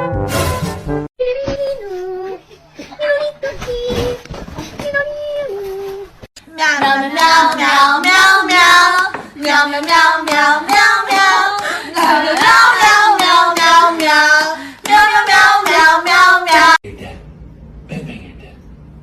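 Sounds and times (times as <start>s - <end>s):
high-pitched voice singing: 1.2s - 6.7s.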